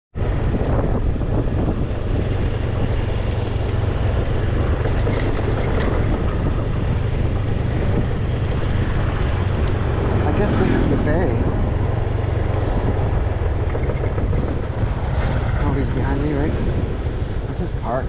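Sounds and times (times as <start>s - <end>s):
wind buffeting microphone: 0.2s - 18.0s.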